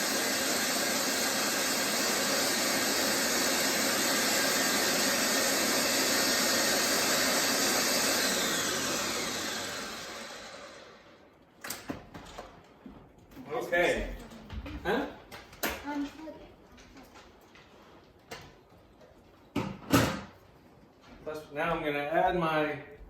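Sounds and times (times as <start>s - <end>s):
food processor motor running: 0.0s - 11.2s.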